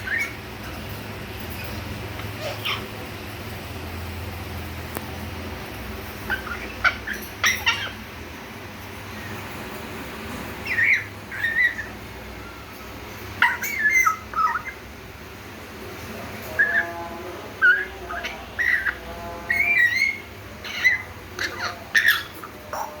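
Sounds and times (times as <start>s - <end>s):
parrot whistling and chirping: 0.0s - 0.9s, 6.2s - 8.0s, 10.6s - 14.8s, 16.5s - 17.0s, 17.6s - 23.0s.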